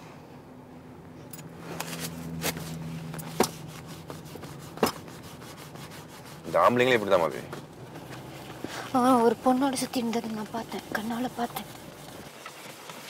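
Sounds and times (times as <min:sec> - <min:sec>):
car engine hum inside cabin: 0:00.2 - 0:13.0.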